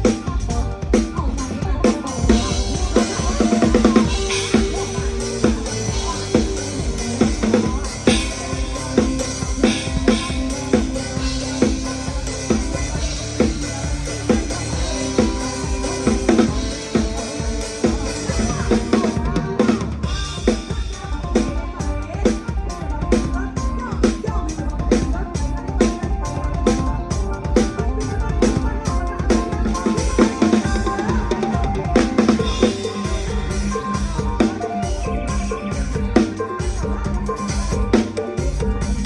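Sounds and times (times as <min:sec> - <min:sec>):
drum kit beat: 0:00.0 - 0:39.0
live band music: 0:00.0 - 0:39.0.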